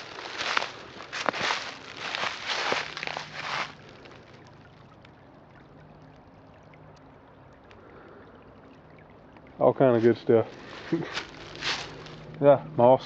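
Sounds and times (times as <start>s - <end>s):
footsteps crunching dry leaves: 0.0s - 4.1s, 10.5s - 12.3s
creek trickling: 0.0s - 13.0s.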